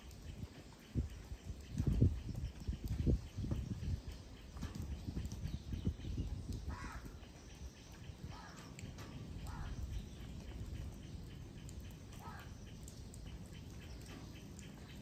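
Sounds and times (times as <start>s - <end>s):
bird calling: 6.7s - 15.0s.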